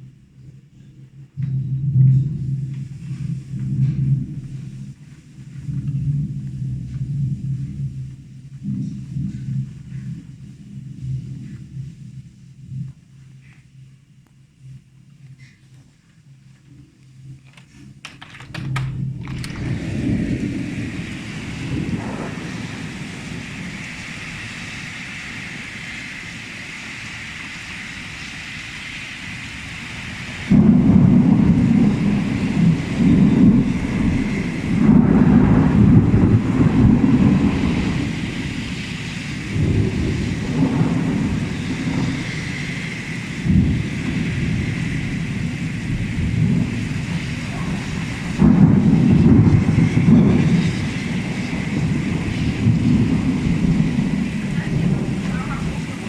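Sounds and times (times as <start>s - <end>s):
deep uneven rumble: 1.4s - 13.4s, 17.4s - 25.1s, 39.6s - 56.0s
heavy rain hissing: 17.4s - 56.0s.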